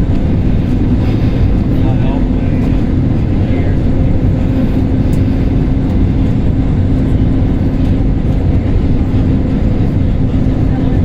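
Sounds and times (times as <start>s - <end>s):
constant low hum: 0.0s - 11.0s
engine drone and rushing air: 0.0s - 11.0s.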